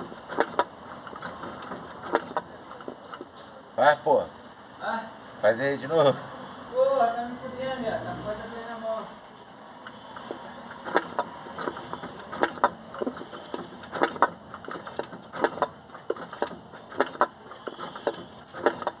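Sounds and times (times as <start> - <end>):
diesel engine knocking: 0.0 - 3.4, 9.8 - 19.0.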